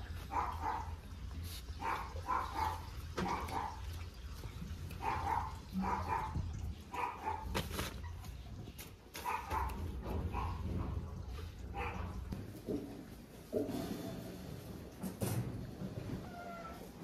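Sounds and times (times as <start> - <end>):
dogs barking: 0.0 - 7.7, 9.1 - 12.4.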